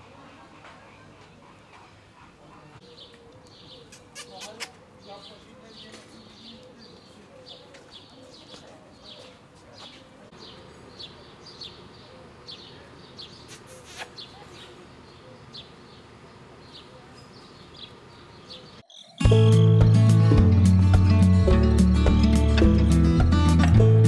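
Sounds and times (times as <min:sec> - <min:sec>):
faint outdoor background noise: 0:00.0 - 0:19.2
small birds chirping: 0:00.3 - 0:19.8.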